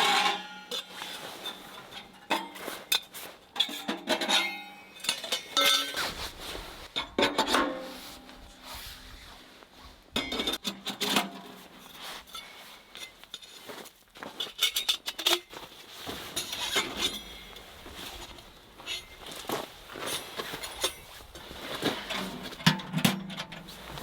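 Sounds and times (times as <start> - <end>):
metal parts clanking: 0.0 - 6.0.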